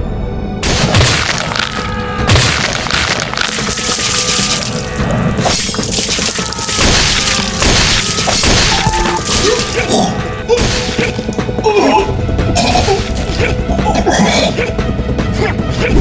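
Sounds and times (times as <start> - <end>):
background music: 0.0 - 16.0
crashes smashes and thuds: 0.6 - 9.9.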